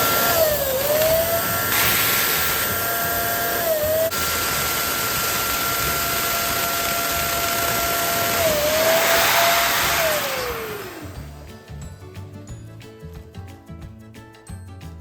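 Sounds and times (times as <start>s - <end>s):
motor winding down: 0.0s - 11.4s
balloon inflator whine: 0.0s - 11.5s.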